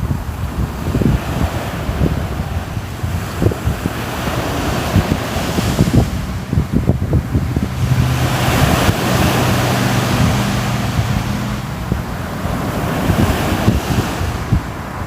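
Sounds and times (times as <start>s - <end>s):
ocean surf washing ashore: 0.0s - 15.0s
wind gusting on microphone: 0.0s - 15.0s
low steady drone: 5.7s - 13.2s.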